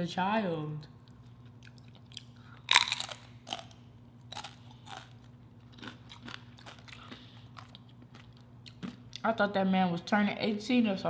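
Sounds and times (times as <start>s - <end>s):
crunching on a tortilla chip: 1.4s - 9.2s.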